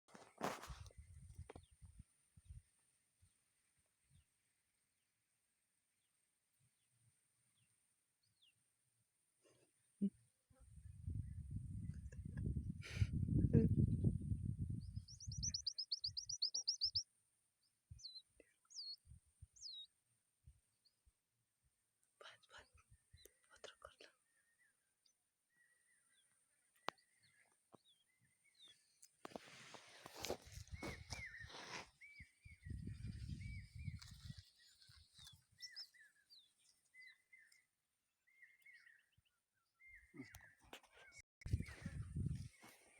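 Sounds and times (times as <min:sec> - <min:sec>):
birds chirping: 0:14.8 - 0:17.0, 0:30.0 - 0:37.7, 0:38.3 - 0:42.9
bird trill and swooping calls: 0:15.2 - 0:17.0.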